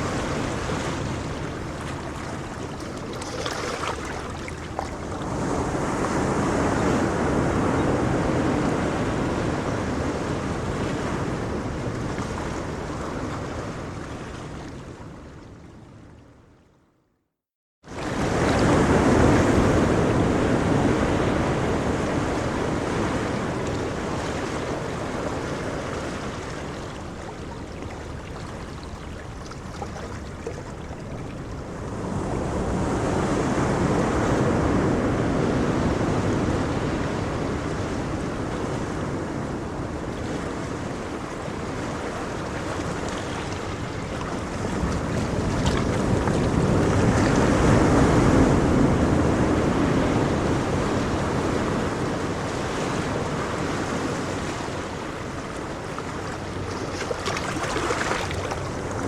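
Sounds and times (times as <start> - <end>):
ocean waves breaking on shore: 0.0 - 16.5, 17.9 - 59.0.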